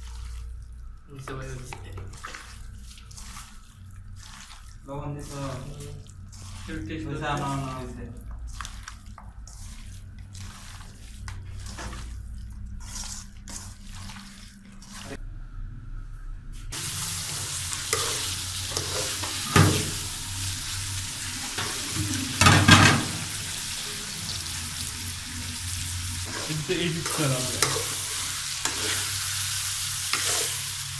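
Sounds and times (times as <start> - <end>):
curry sizzling in hot oil: 1.2 - 15.2, 16.7 - 30.9
spoon scraping against pan: 16.8 - 20.0, 26.2 - 30.9.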